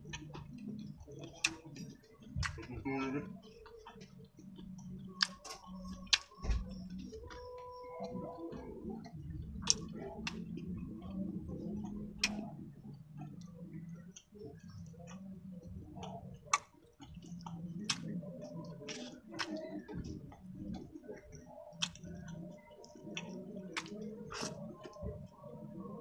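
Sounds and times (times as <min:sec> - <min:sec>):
chewing and wet mouth sounds: 0:00.0 - 0:26.0.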